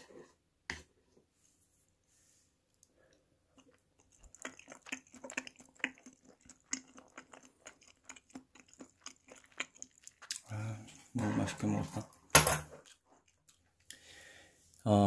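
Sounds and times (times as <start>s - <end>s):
person chewing food: 2.7s - 14.1s
mouth clicks and smacks: 3.6s - 10.5s.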